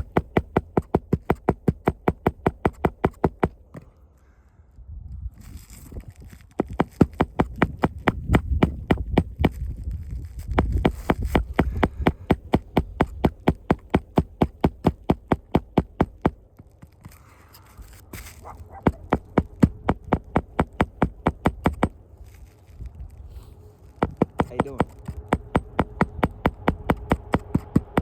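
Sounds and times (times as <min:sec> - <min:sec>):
rapid clicking: 0:06.6 - 0:09.6.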